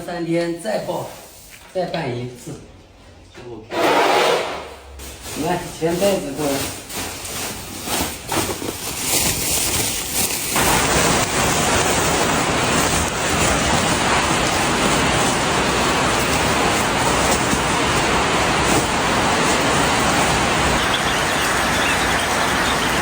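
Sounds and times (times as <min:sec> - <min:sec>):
loud steady rushing noise: 0:10.5 - 0:23.0.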